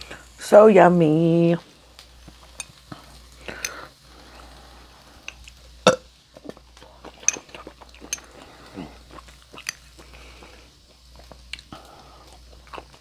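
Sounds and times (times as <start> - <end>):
chewing and mouth sounds: 5.3 - 13.0.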